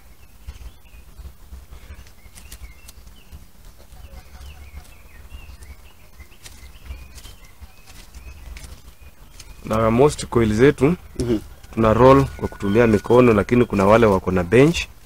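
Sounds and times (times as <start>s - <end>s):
low rumble: 0.0s - 15.0s
small birds chirping: 0.0s - 15.0s
sharp clicks: 2.0s - 3.8s.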